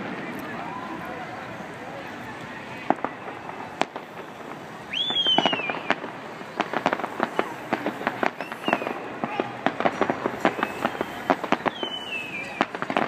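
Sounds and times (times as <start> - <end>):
firework bangs: 0.0 - 13.0
firework crackling: 0.0 - 13.0
firework whistle: 2.6 - 13.0.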